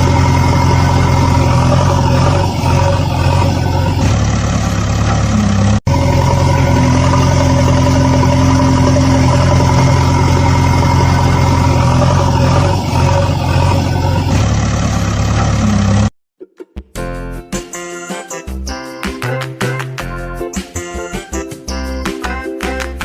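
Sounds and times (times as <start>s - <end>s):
engine humming steadily: 0.0s - 16.1s.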